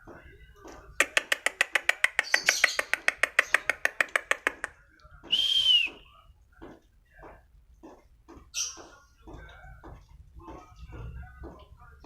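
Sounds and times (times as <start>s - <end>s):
bird singing sharp repeated notes: 1.0s - 4.6s
bird whistled note: 5.3s - 6.0s.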